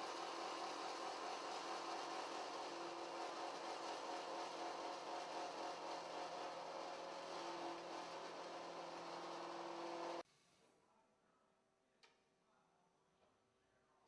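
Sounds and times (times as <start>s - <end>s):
saw machine humming and whirring: 0.0s - 10.2s.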